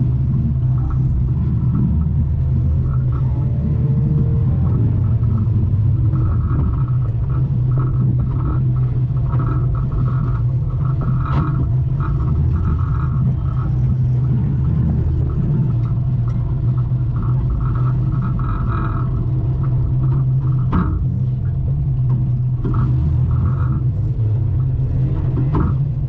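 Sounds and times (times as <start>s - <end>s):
car engine droning: 0.0s - 26.0s.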